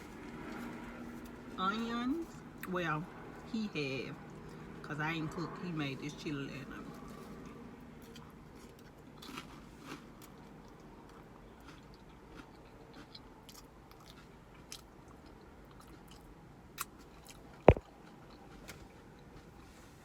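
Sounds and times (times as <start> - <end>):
person chewing crackers: 6.9 - 19.8.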